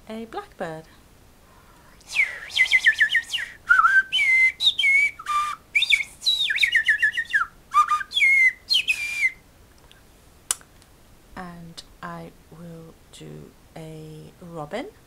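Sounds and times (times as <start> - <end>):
person finger-whistling birdsong: 2.1 - 9.4.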